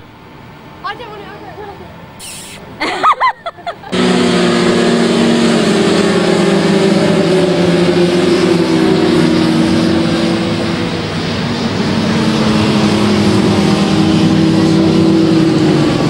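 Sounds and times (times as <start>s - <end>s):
motorcycle engine running loudly: 3.9s - 16.0s.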